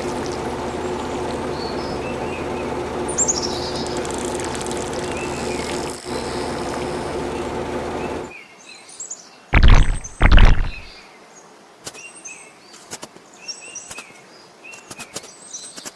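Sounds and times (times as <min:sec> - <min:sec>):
birds chirping: 0:00.0 - 0:06.7, 0:09.6 - 0:11.0.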